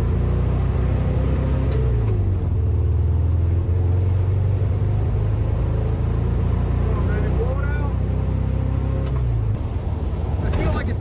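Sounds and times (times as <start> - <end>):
car engine running: 9.3 - 11.0.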